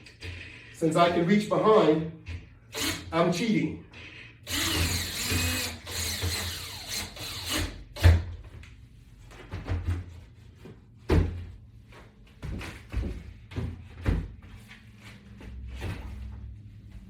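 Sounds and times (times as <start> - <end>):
power drill driving screw: 2.7 - 3.1, 4.4 - 8.2
knocks and thuds of handling: 9.3 - 11.6, 12.4 - 14.7.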